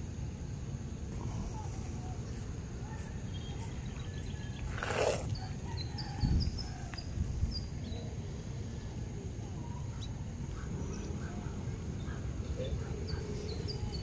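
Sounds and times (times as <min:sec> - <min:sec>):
birds chirping: 0:09.6 - 0:14.0.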